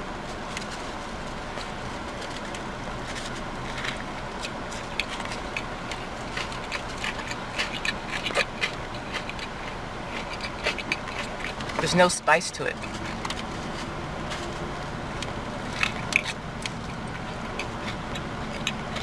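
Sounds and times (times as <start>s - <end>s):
steady low hum: 0.0s - 19.0s
chewing and wet mouth clicks: 3.7s - 11.8s, 15.2s - 19.0s.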